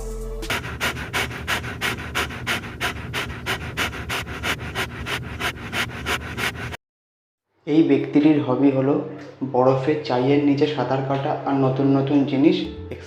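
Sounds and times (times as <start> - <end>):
dog panting: 0.5 - 6.8.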